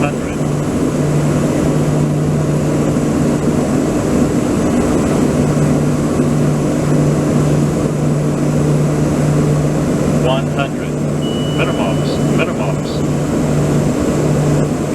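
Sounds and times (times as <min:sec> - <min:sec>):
engine humming: 0:00.0 - 0:14.9.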